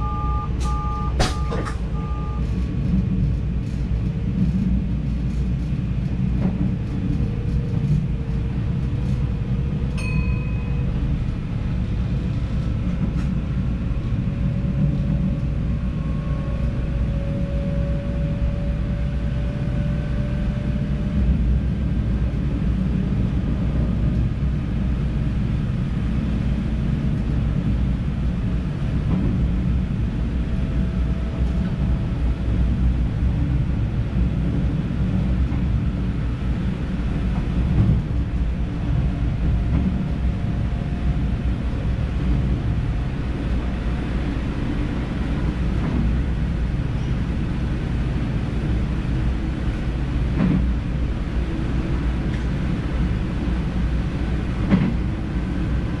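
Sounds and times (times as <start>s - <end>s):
short high beep: 0.0s - 2.5s
wheels rumbling on rail: 0.0s - 56.0s.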